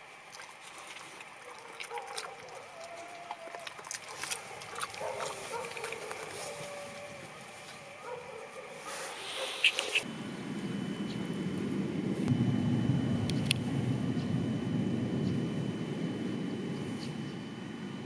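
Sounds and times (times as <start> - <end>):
faint whine-like tones: 0.0 - 18.0
dog snuffling and chewing: 0.3 - 10.0.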